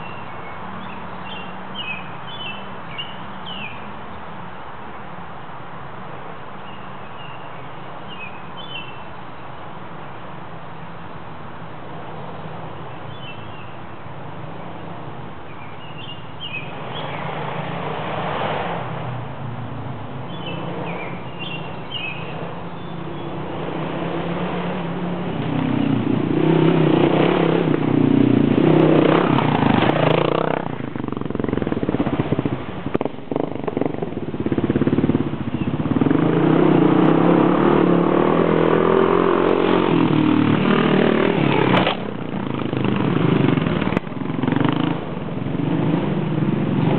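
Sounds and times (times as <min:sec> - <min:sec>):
motorcycle engines revving: 0:11.5 - 0:46.9.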